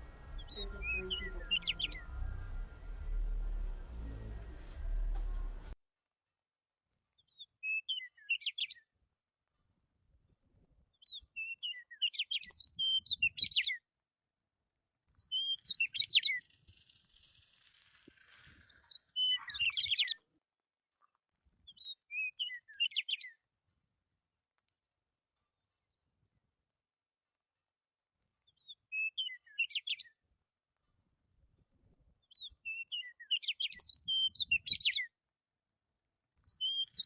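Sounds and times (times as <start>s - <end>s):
bird chirping: 0.0s - 5.8s, 15.1s - 17.5s, 18.7s - 20.2s, 28.5s - 30.0s, 32.3s - 35.1s, 36.4s - 37.0s.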